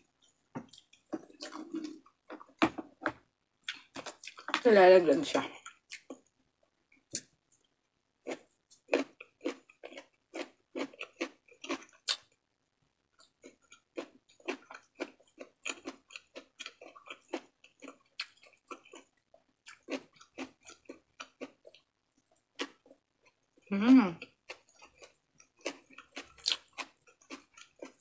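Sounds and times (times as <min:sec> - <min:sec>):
person chewing with mouth smacks: 0:00.6 - 0:03.0, 0:03.6 - 0:04.6, 0:08.3 - 0:12.3, 0:24.2 - 0:28.0.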